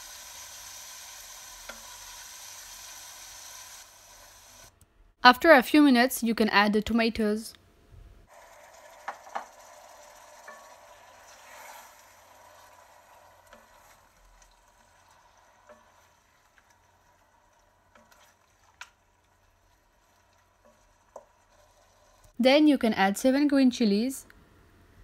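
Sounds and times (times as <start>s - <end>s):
tomatoes sizzling in hot oil: 0.0s - 4.7s, 8.3s - 22.4s.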